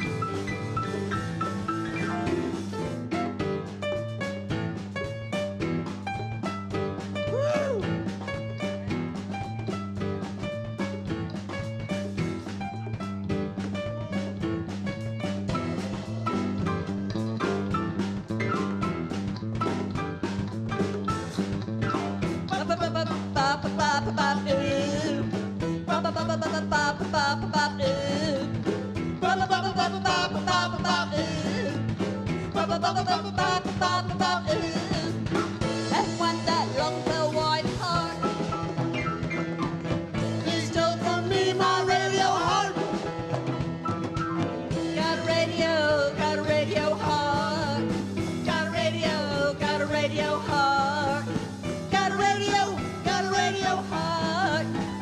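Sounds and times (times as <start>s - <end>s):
live band playing acoustic pop: 0.0s - 55.0s.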